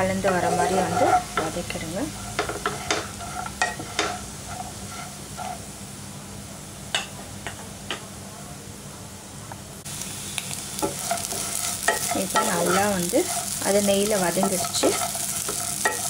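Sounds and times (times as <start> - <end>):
quiet sizzle in pan: 0.0 - 16.0
wooden spatula scraping and tapping: 0.2 - 5.6, 10.8 - 16.0.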